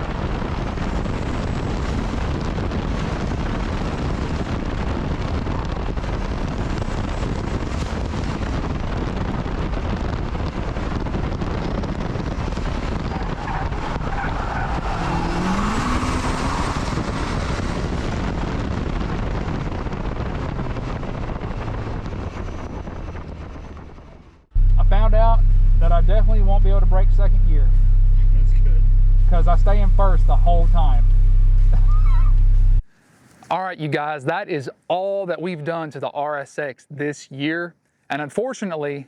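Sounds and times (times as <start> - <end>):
road and wind noise: 0.0 - 33.5
car engine under load: 0.4 - 33.5
tires squealing: 12.1 - 18.7, 31.7 - 32.6.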